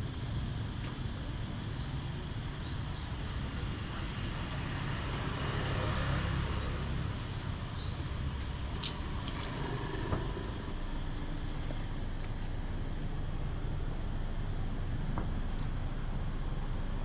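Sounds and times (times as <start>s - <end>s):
road noise: 0.0s - 17.0s
traffic engine rumble: 0.0s - 17.0s
vehicle passing: 3.8s - 10.8s.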